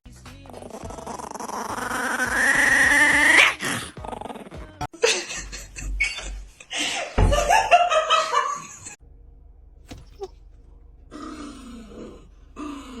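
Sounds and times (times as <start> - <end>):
dog groaning: 0.4 - 4.9, 9.9 - 13.0
dog growling: 0.4 - 4.9, 9.9 - 13.0.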